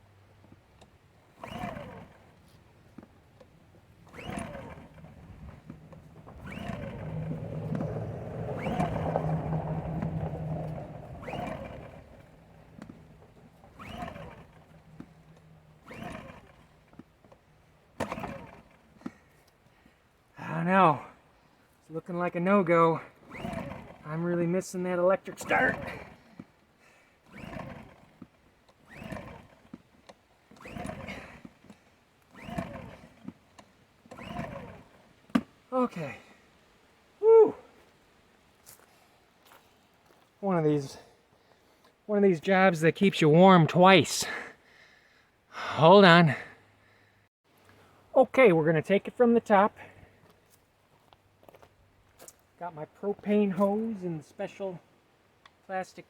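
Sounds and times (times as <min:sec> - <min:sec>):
generator pull-starter whirring: 0:00.0 - 0:20.4, 0:21.9 - 0:36.2, 0:41.5 - 0:44.8.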